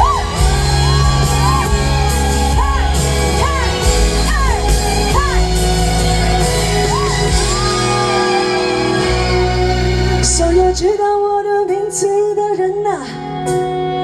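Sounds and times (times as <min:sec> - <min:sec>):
crowd shouting: 0:00.0 - 0:10.2
live pop band playing: 0:00.0 - 0:14.0.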